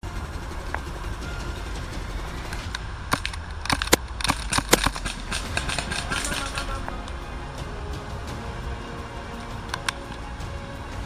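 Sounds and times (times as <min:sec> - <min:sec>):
airsoft pistol shots: 0:03.1 - 0:06.8.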